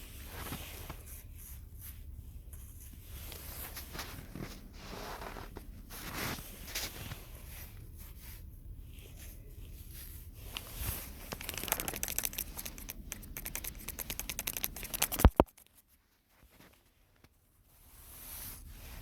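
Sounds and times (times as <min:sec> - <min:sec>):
rustling and crinkling dry material: 0:00.0 - 0:19.0
sharp loud clicks: 0:11.3 - 0:15.6.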